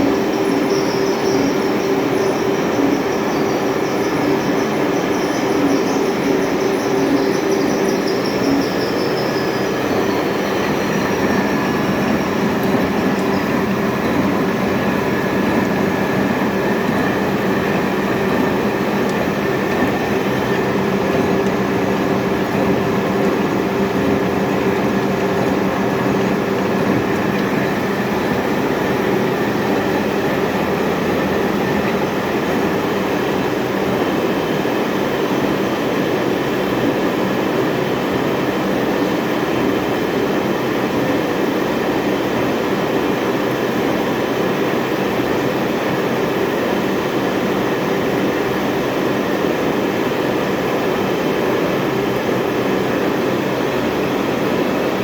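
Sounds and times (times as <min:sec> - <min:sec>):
lathe whirring: 0:00.0 - 0:35.6.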